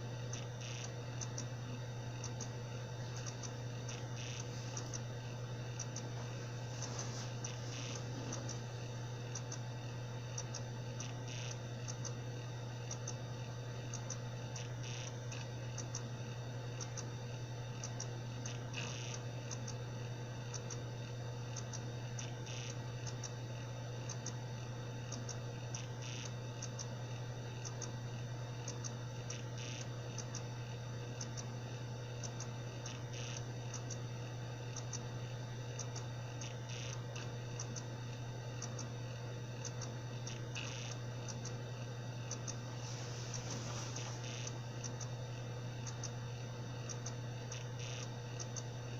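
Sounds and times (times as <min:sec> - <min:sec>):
hard drive clicks: 0:00.0 - 0:48.9
hard drive spinning hum: 0:00.0 - 0:48.9.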